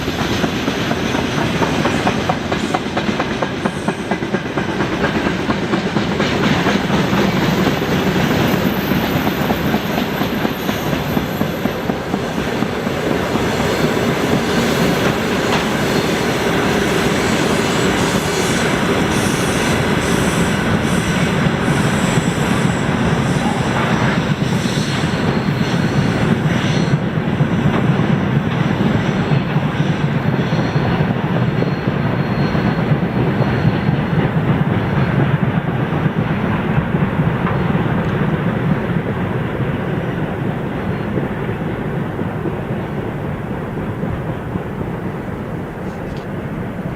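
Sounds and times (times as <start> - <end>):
freight train rumbling past: 0.0 - 46.9
high wheel squeal: 15.7 - 27.1, 28.6 - 34.2.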